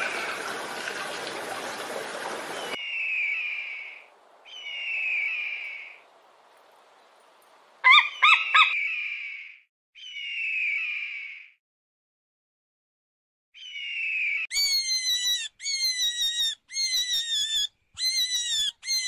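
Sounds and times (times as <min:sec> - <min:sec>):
eagle whistling calls: 0:07.8 - 0:09.2, 0:13.6 - 0:19.0.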